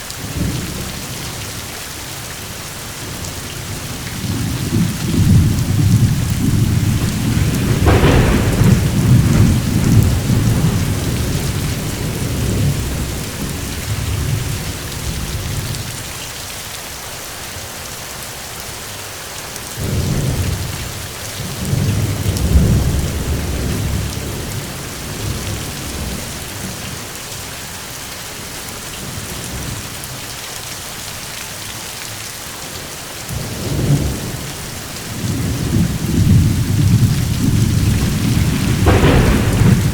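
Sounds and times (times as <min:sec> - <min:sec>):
steady rain: 0:00.0 - 0:39.9
rolling thunder: 0:03.1 - 0:16.0, 0:19.8 - 0:26.7, 0:33.3 - 0:39.9.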